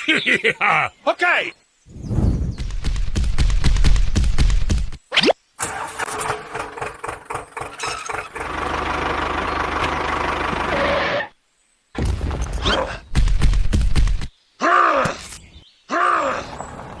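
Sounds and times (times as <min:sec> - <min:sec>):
small engine running: 0:05.6 - 0:11.2.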